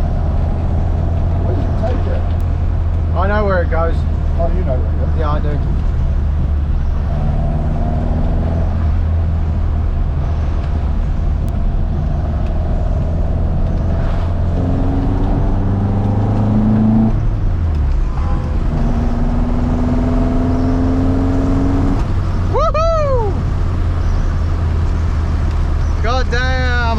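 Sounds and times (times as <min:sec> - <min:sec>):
car engine accelerating: 0:00.0 - 0:26.9.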